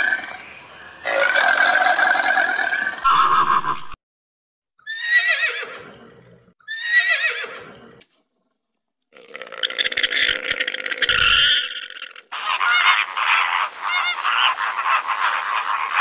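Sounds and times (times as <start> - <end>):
horse whinnying: 4.8 - 8.0.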